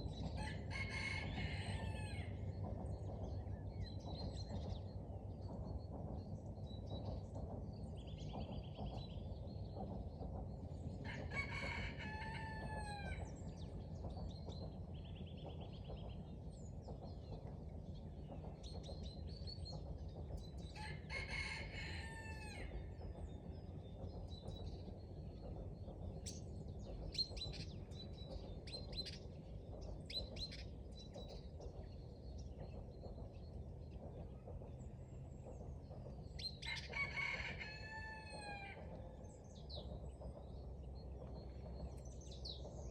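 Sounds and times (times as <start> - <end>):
songbirds chirping and trilling: 0.0 - 42.9
rooster crowing: 11.1 - 13.2, 20.8 - 22.7, 36.9 - 38.8.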